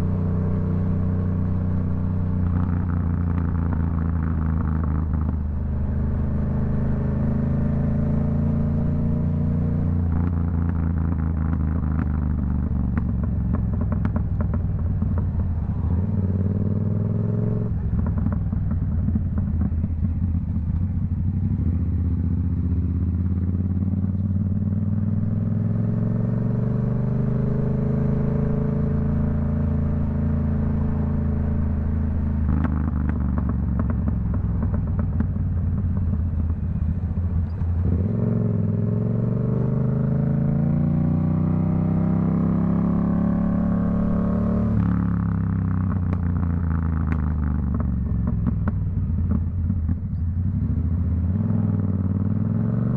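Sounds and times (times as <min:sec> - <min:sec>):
motorcycle engine revving: 0:00.0 - 0:52.9
crackling exhaust pops: 0:10.1 - 0:15.5, 0:17.9 - 0:21.0, 0:32.4 - 0:37.8, 0:44.8 - 0:50.2.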